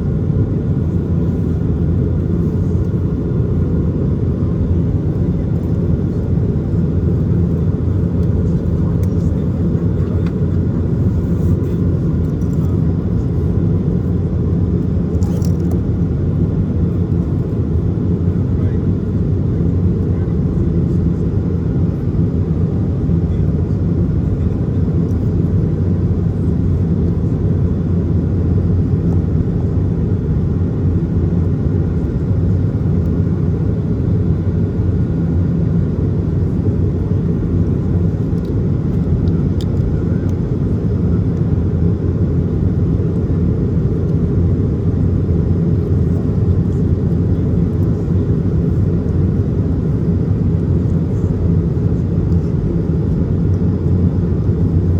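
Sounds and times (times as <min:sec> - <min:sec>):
airplane cabin engine and airflow rush: 0:00.0 - 0:54.9.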